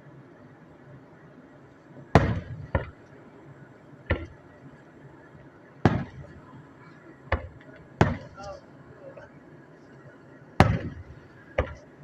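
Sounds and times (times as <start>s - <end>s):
firework shells bursting: 2.2s - 3.0s, 5.8s - 6.5s, 7.3s - 8.6s, 10.6s - 11.9s.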